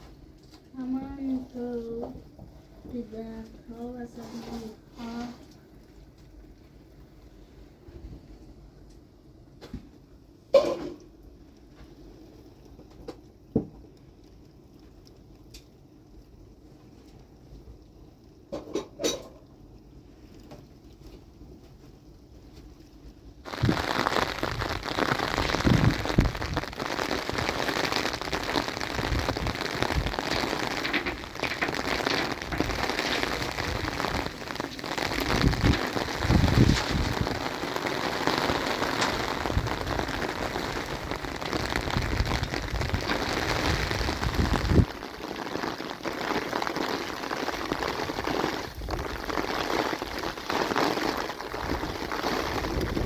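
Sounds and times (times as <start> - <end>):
heavy rain falling: 23.5 - 53.0.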